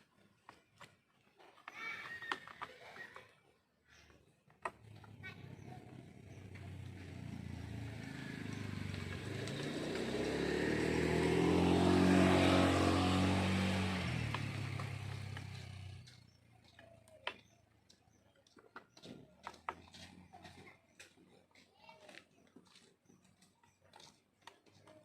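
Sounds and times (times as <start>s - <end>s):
motor vehicle passing by: 3.9s - 18.2s, 19.0s - 21.4s.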